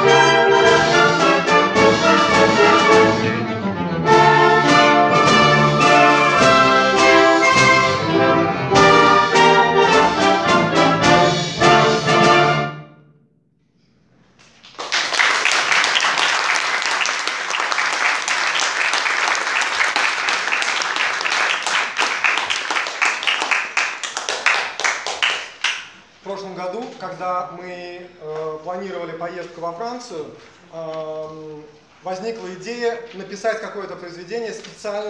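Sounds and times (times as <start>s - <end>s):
orchestra playing: 0.0s - 13.1s
audience applause: 14.6s - 25.9s.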